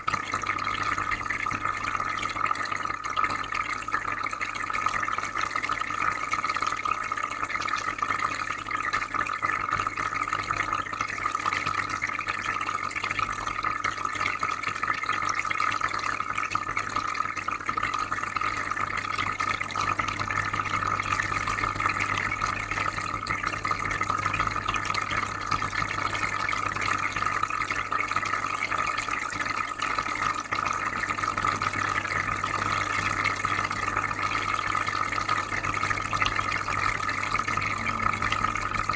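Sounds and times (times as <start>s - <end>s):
water trickling and bubbling: 0.0s - 38.9s
low hum: 31.6s - 38.9s.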